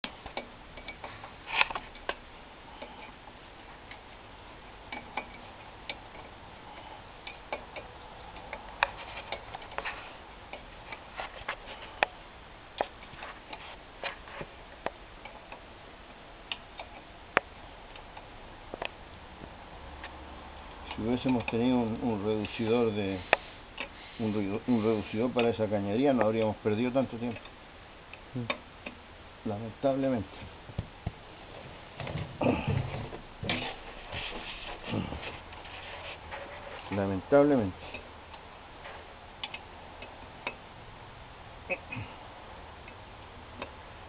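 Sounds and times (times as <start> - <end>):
low steady background: 0.0 - 44.0
clicks and knocks on exhaust pipe: 30.4 - 31.2.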